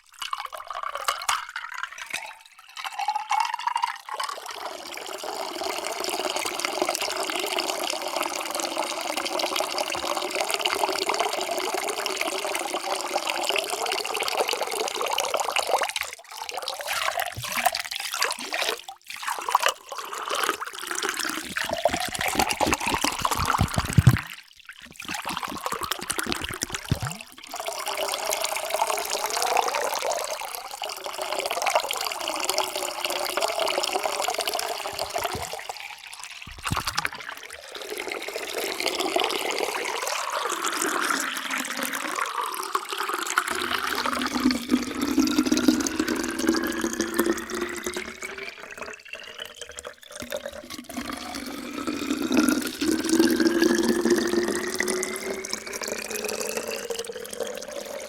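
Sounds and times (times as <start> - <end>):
water pouring into a container: 0.0 - 58.0.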